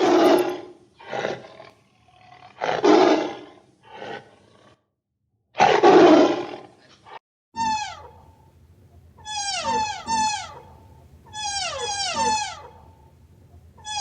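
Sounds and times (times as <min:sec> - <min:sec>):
dog whining: 0:11.3 - 0:12.8.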